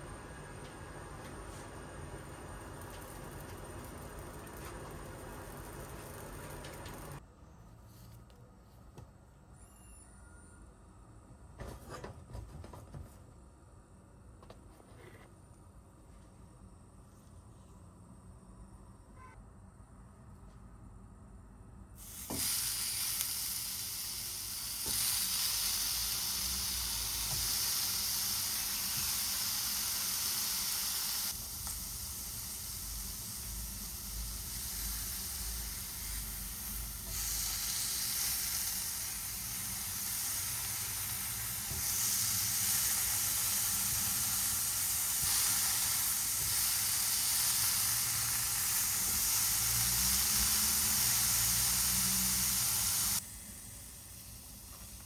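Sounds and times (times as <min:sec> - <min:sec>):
food sizzling in frying pan: 0:01.9 - 0:07.2, 0:22.0 - 0:53.3.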